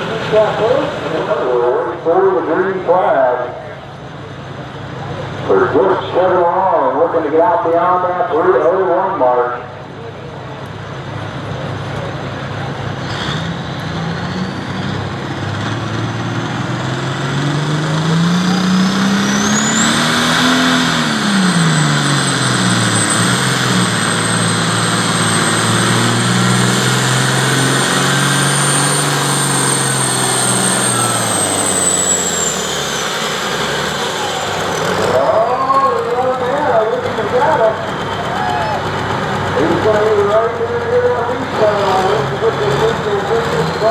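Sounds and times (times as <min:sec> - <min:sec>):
pulling tractor engine: 0:00.0 - 0:43.9
turbocharger whistle: 0:17.9 - 0:35.7.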